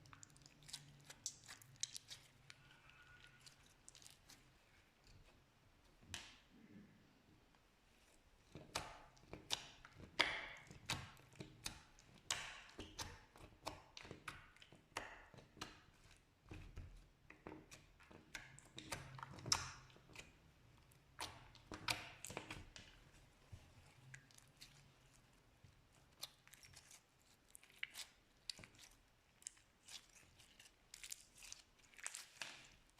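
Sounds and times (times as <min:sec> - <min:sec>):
slime clicking and popping: 0:08.7 - 0:15.8.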